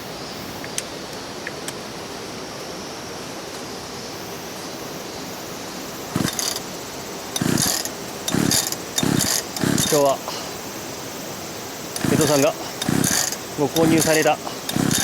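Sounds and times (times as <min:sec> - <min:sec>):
short rasping bursts: 0:06.1 - 0:10.6, 0:11.9 - 0:15.0.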